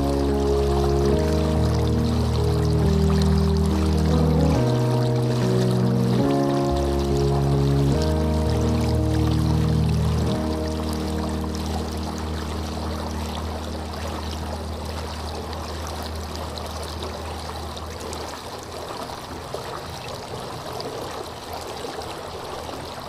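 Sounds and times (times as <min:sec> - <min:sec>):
soft melody: 0:00.0 - 0:18.3
stream flowing and trickling: 0:00.0 - 0:23.0.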